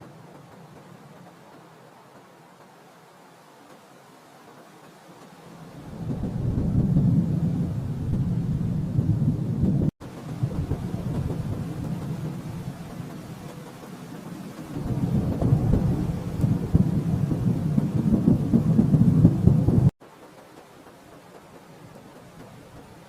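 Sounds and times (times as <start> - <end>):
rolling thunder: 5.8 - 19.9.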